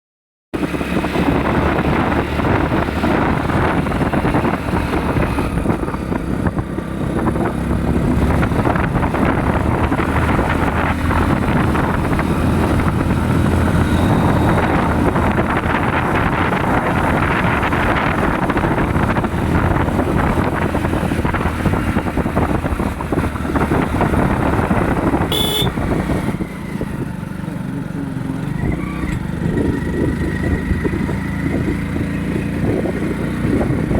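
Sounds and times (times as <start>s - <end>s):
motorcycle engine running: 0.6s - 33.9s
sharp high-pitched sound: 25.3s - 25.7s.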